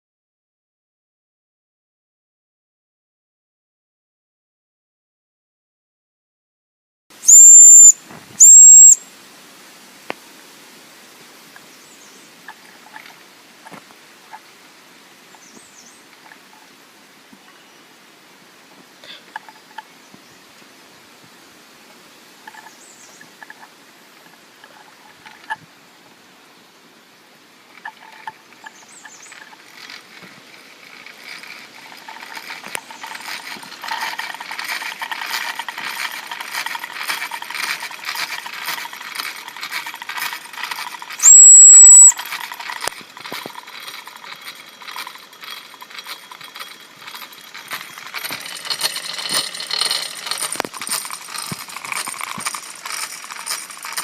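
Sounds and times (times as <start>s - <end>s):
high steam whistle: 7.3s - 9.0s, 41.2s - 42.2s
steam engine chuffing and rattling: 27.8s - 41.2s, 42.2s - 54.0s.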